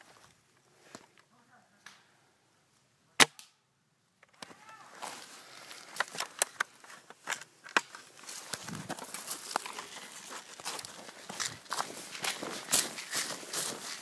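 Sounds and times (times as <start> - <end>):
footsteps through dry leaves: 4.9 - 6.0, 8.0 - 14.0
sharp clicks and cracks: 5.9 - 9.9.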